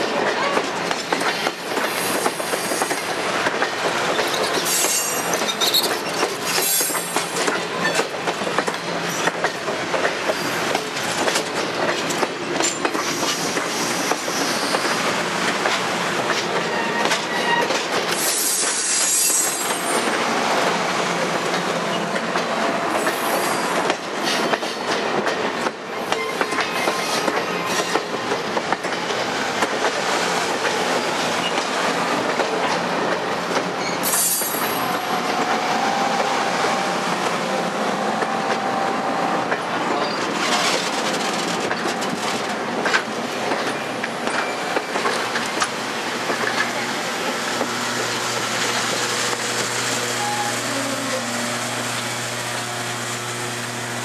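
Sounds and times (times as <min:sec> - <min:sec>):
train wheels rumbling on rails: 0:00.0 - 0:54.0
wheels clacking over rail joints: 0:00.1 - 0:37.4, 0:39.4 - 0:47.8
high wheel squeal: 0:04.6 - 0:07.1, 0:16.7 - 0:20.0.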